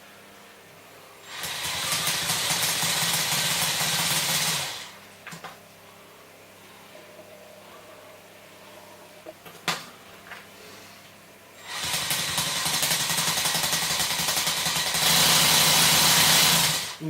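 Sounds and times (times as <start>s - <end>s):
rapid buzzing rattle of spinning disc: 1.3s - 5.6s, 11.6s - 17.0s.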